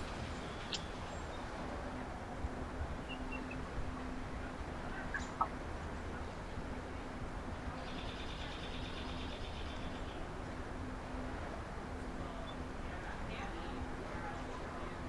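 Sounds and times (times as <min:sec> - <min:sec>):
small birds chirping: 0:00.0 - 0:01.5
low background hum: 0:00.0 - 0:15.0.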